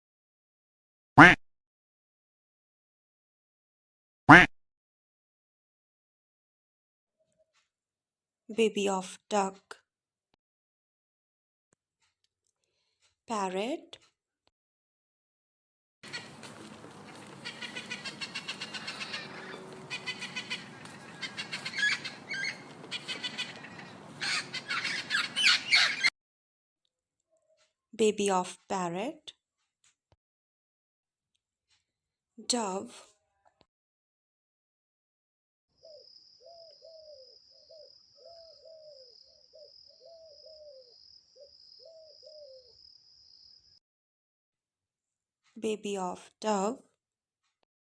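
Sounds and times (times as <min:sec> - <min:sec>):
parrot squawking and chattering: 0:16.0 - 0:26.1
dove cooing: 0:16.1 - 0:26.1, 0:35.8 - 0:42.8.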